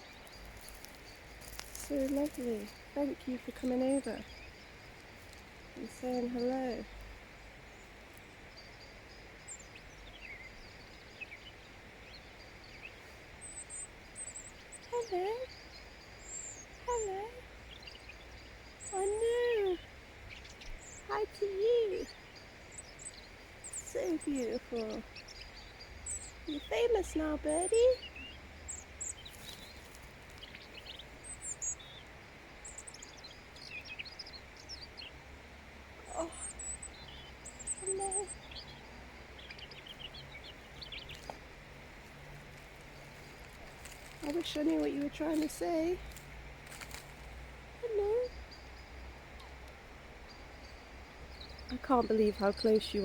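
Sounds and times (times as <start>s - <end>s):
robin singing: 0.0s - 53.0s.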